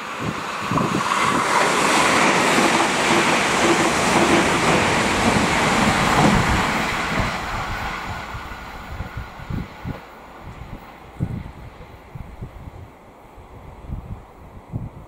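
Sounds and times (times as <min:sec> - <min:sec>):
train passing at speed: 0:00.0 - 0:15.0.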